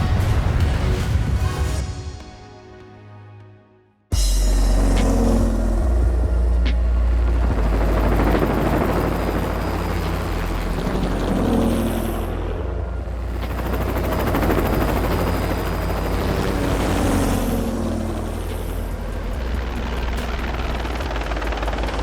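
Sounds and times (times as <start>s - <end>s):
deep rumble with helicopter noise: 4.2s - 22.0s.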